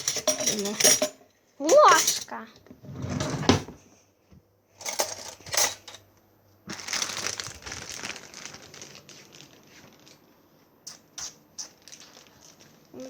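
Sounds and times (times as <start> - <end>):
paper or plastic crinkling: 6.7 - 10.4, 11.7 - 13.0.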